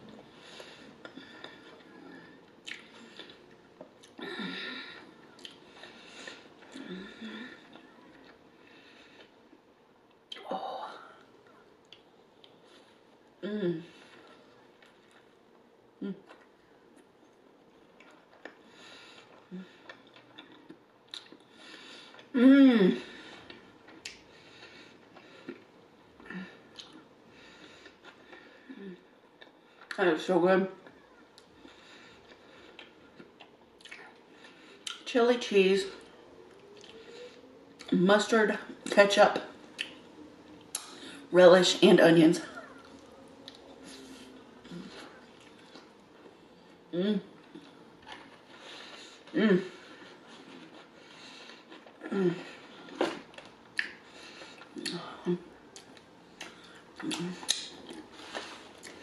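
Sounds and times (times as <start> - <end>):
soft wet chewing: 0.0 - 10.5, 11.2 - 22.3, 23.0 - 30.0, 30.7 - 35.1, 35.9 - 41.3, 42.4 - 59.0
person humming mmm: 13.4 - 14.0, 22.4 - 23.1, 46.9 - 47.4.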